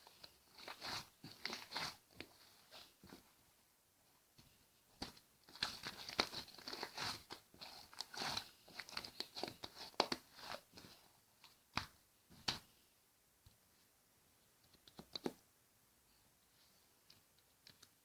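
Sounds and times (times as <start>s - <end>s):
slime squishing and crackling: 0.0s - 3.2s, 5.0s - 11.0s.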